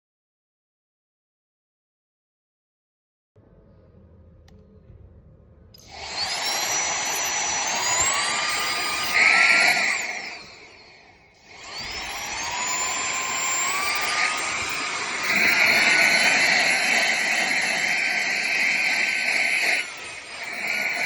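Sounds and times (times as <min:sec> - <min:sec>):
handheld vacuum motor whine: 0:05.8 - 0:21.0.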